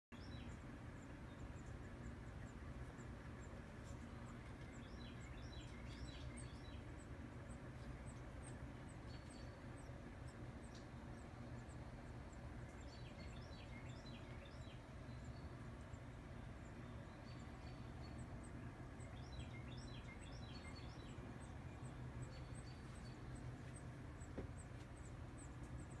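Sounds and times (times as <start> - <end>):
wren singing: 0.1 - 26.0
low background rumble: 0.2 - 26.0.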